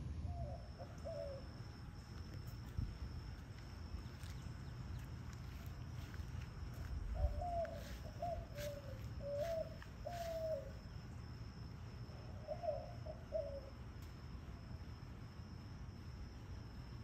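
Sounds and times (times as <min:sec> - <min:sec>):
bird cooing: 0:00.3 - 0:01.6, 0:06.8 - 0:10.9, 0:12.2 - 0:13.8.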